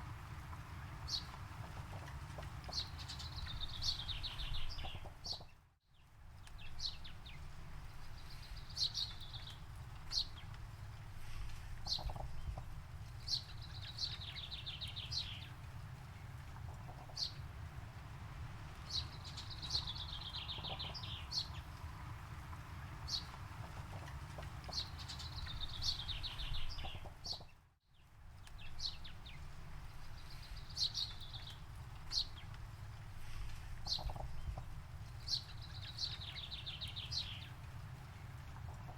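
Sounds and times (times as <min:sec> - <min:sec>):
songbirds trilling: 0:00.8 - 0:05.5, 0:11.8 - 0:12.6, 0:18.8 - 0:21.8, 0:22.8 - 0:27.6, 0:33.2 - 0:38.9.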